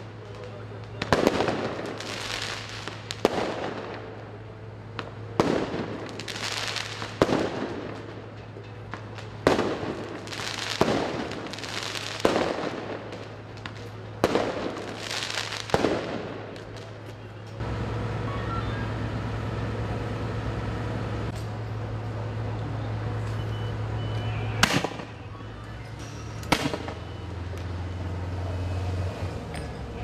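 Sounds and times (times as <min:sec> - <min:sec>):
fireworks banging and crackling: 0:00.0 - 0:18.1, 0:23.2 - 0:28.6.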